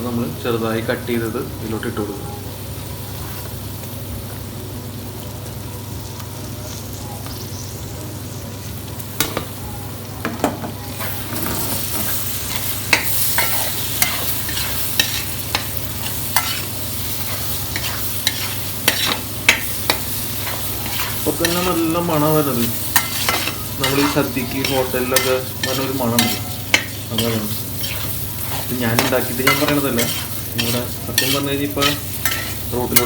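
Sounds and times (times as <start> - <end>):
onions sizzling in a pan: 0.0 - 33.0
spoon scraping and clinking on pan: 23.0 - 33.0.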